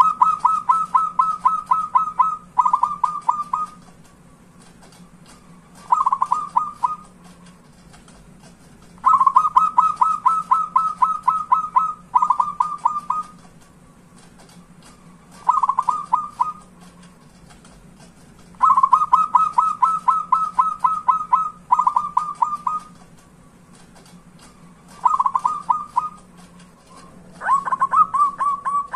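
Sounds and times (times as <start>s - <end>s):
dove cooing: 0.0s - 3.8s, 5.6s - 7.2s, 9.0s - 13.4s, 15.3s - 16.8s, 18.6s - 23.0s, 24.8s - 26.3s, 26.9s - 28.9s.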